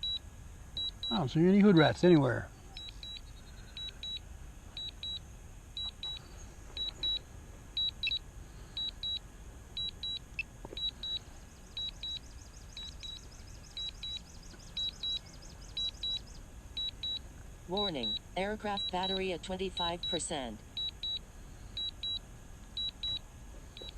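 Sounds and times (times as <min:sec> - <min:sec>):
low steady rumble: 0:00.0 - 0:23.9
electronic double beep: 0:17.8 - 0:21.2.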